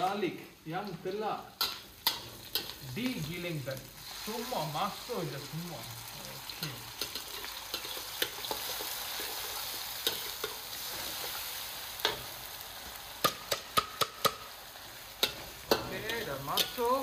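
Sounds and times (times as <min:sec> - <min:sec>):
onions sizzling in hot oil: 0:00.0 - 0:17.0
spatula clanking against pan: 0:01.6 - 0:02.7, 0:15.2 - 0:16.8
metal spatula scraping a wok: 0:01.6 - 0:02.9, 0:06.5 - 0:12.4.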